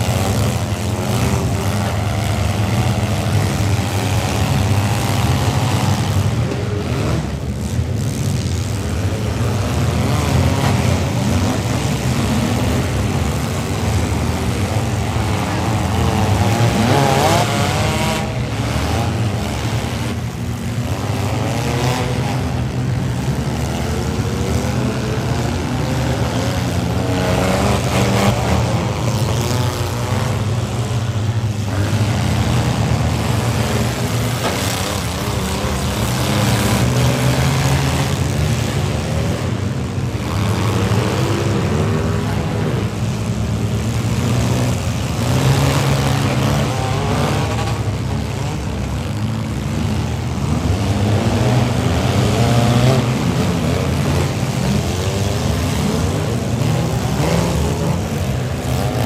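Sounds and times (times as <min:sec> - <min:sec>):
engines revving hard: 0:00.0 - 0:59.0.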